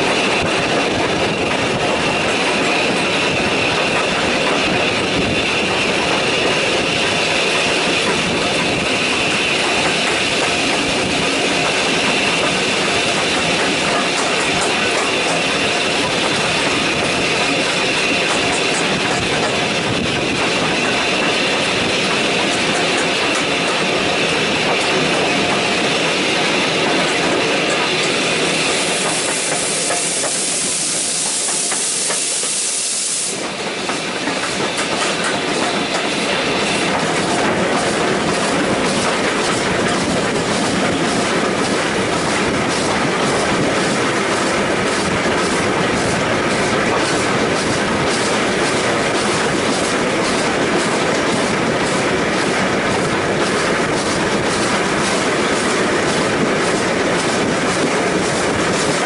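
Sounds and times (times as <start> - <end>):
steam hiss: 0.0 - 39.1
train wheels clicking over rail joints: 0.0 - 59.0.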